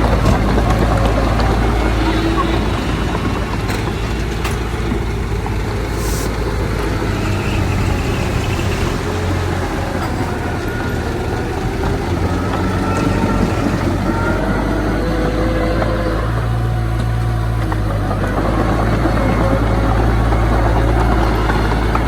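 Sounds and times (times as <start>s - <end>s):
heavy diesel machinery running: 0.0s - 22.0s
short hiss: 5.9s - 6.4s.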